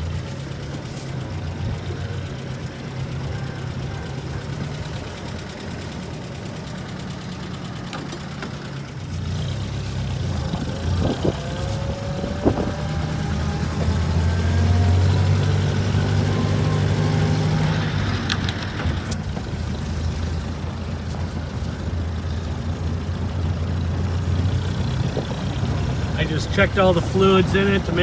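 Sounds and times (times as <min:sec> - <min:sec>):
four-cylinder engine running: 0:00.0 - 0:28.0
sharp clicks: 0:18.0 - 0:19.2.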